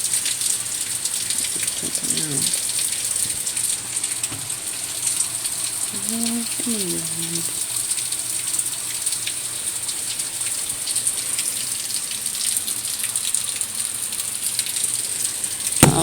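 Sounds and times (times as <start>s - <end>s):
heavy rain hissing: 0.0s - 12.0s, 14.8s - 16.0s
raindrops ticking: 0.0s - 16.0s.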